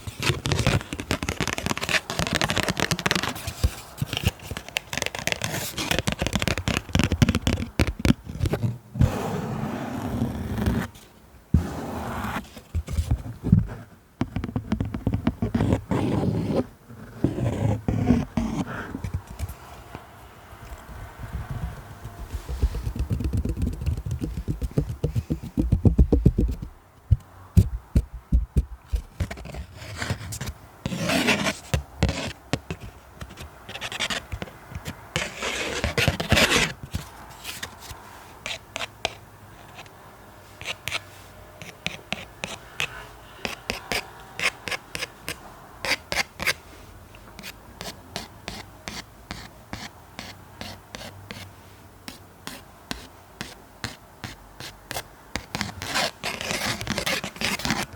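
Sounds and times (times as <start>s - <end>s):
hand rubbing and scratching surface: 0.0s - 11.0s, 11.6s - 19.8s, 20.8s - 39.9s, 40.5s - 46.6s, 52.1s - 57.9s
quick light taps and clicks: 20.7s - 29.1s.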